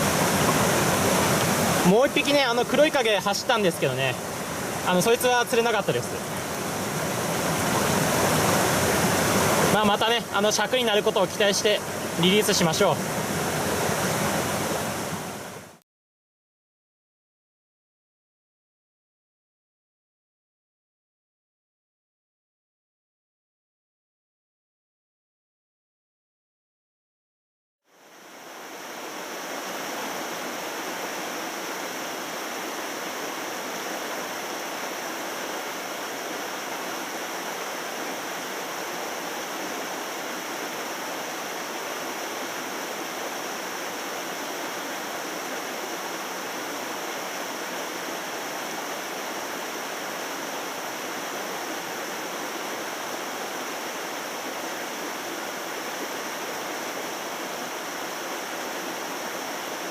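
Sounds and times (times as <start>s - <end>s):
stream water rushing: 0.0s - 15.8s, 27.9s - 59.9s.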